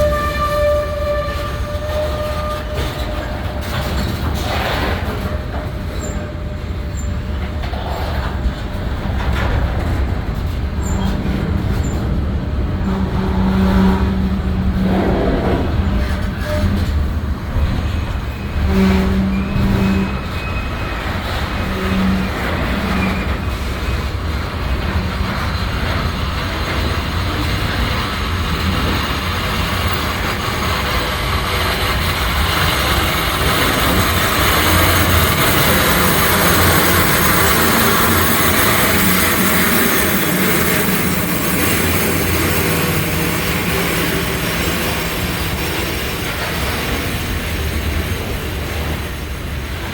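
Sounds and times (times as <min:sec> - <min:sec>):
freight train rumbling on rails: 0:00.0 - 0:49.9
high wheel squeal: 0:17.8 - 0:23.8.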